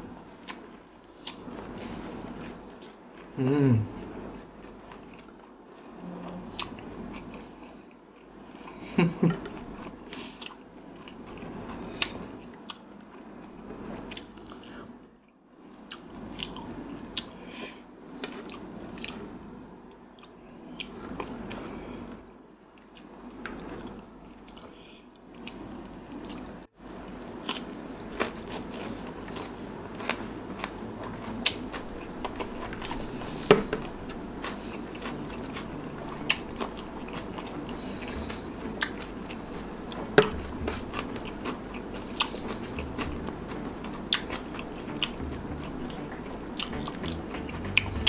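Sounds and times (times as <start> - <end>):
crunchy chewing: 27.5 - 48.0.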